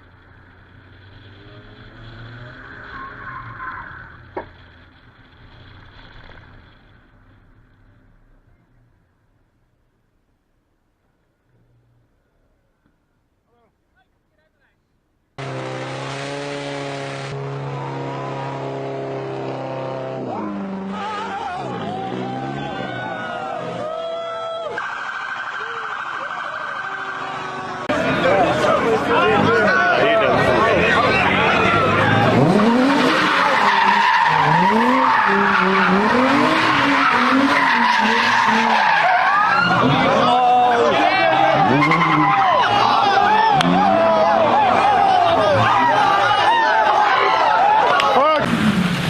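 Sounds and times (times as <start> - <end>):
car engine at high revs: 0.0 - 7.2, 15.4 - 23.8, 26.4 - 46.4
tire squeal: 0.0 - 8.0, 20.1 - 48.9.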